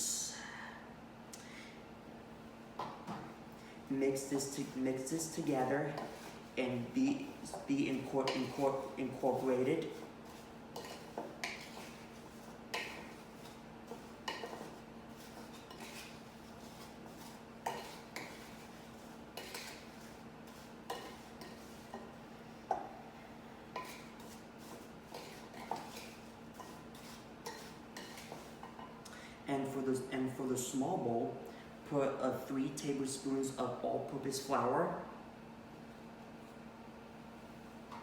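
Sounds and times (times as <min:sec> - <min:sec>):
faint steady hum: 0:00.0 - 0:38.0
utensil scraping mixing bowl: 0:04.0 - 0:22.2, 0:23.7 - 0:28.8.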